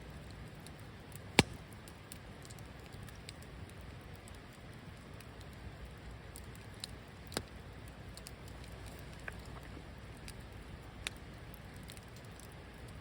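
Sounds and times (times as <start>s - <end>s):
campfire hissing and crackling: 0.0s - 13.0s
sharp pop from fire: 1.3s - 1.8s.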